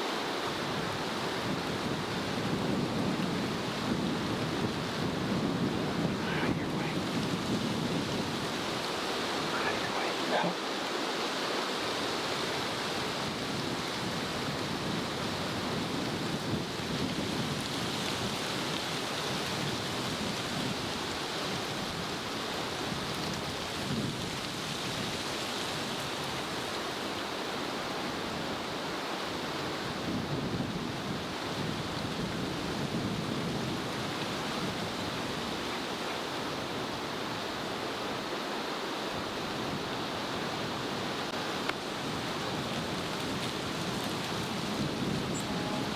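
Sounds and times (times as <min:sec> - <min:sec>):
wind rushing: 0:05.1 - 0:10.6.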